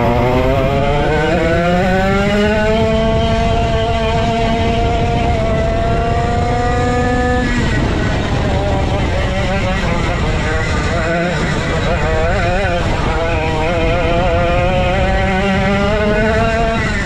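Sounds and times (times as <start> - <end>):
go-kart engine accelerating: 0.0 - 17.0.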